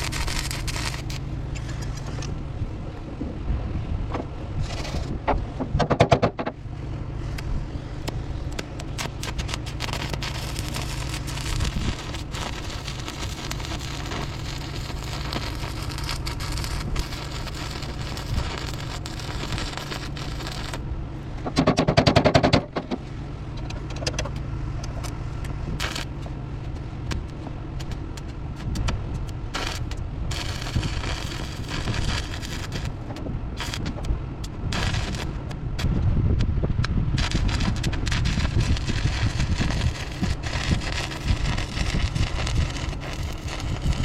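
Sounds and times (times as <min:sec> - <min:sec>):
rattling burst: 0:00.0 - 0:01.2, 0:08.9 - 0:20.8, 0:29.5 - 0:34.0, 0:37.2 - 0:44.0
welding arc crackling: 0:00.0 - 0:02.2, 0:08.0 - 0:20.9, 0:24.8 - 0:36.0, 0:37.2 - 0:44.0
sharp clicks and crackles: 0:00.0 - 0:02.4, 0:07.3 - 0:20.8, 0:21.4 - 0:44.0
steady low hum: 0:00.0 - 0:44.0.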